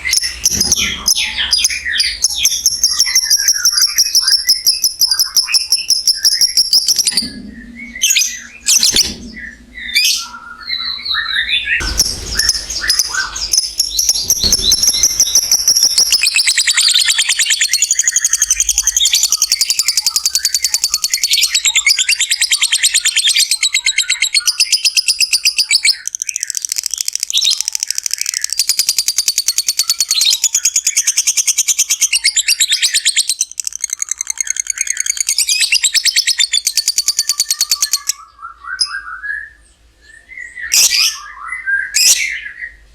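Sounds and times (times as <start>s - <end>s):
lovebird chatter: 0.0s - 7.3s, 11.8s - 38.2s
bird chirps: 0.0s - 42.8s.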